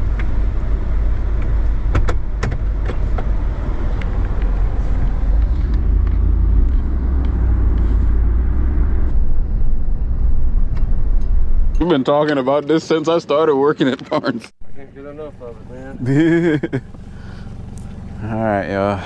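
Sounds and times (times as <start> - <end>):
vehicle engine rumble: 0.0 - 11.9, 14.6 - 19.0
sharp clicks and knocks: 1.4 - 3.3.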